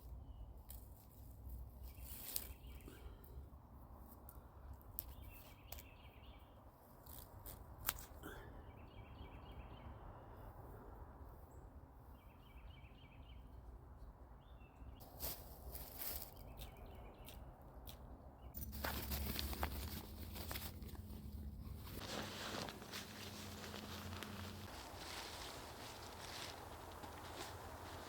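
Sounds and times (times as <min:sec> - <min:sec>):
crunches and rustles in dry leaves: 0:00.0 - 0:03.2, 0:15.0 - 0:17.0, 0:18.6 - 0:28.0.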